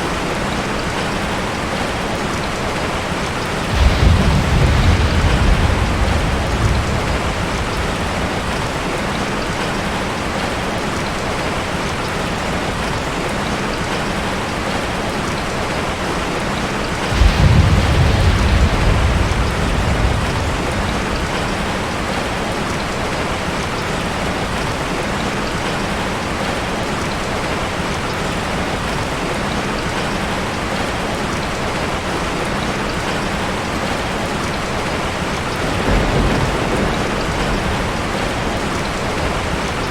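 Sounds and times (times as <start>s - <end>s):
heavy rain falling: 0.0s - 39.9s
low roll of thunder: 3.6s - 9.7s, 17.0s - 23.2s, 35.5s - 39.9s.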